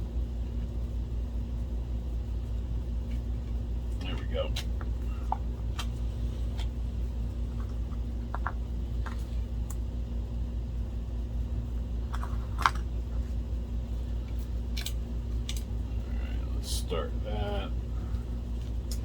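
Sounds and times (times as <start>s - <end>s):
low hum: 0.0s - 19.0s
projector parts clicking: 14.3s - 15.7s.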